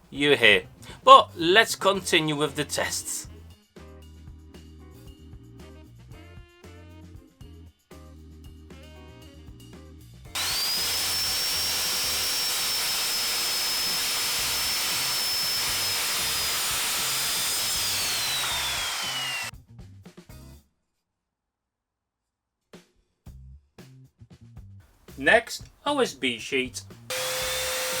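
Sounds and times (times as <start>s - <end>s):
circular saw cutting wood: 10.4s - 19.5s, 27.1s - 28.0s
saw motor whine: 10.4s - 19.5s, 27.1s - 28.0s.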